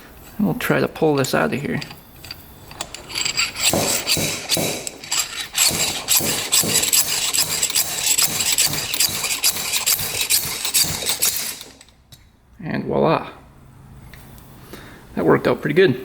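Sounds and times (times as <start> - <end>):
slide hammer scraping and knocking: 1.0 - 12.2.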